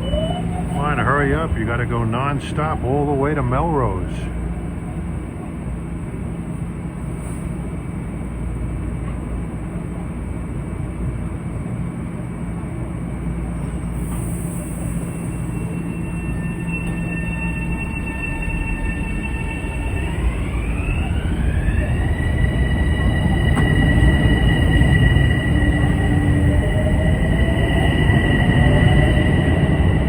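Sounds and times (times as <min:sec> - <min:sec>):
steady high whine: 0:00.0 - 0:04.5, 0:15.1 - 0:30.0
commuter train rumbling: 0:00.0 - 0:30.0.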